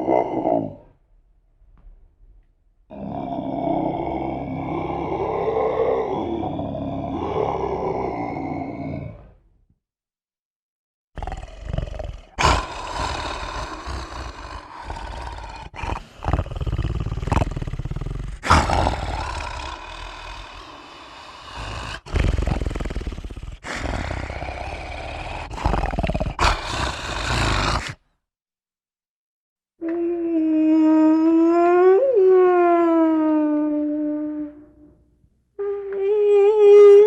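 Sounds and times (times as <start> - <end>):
creature roars: 0.0 - 0.9, 2.9 - 9.4, 11.2 - 28.0.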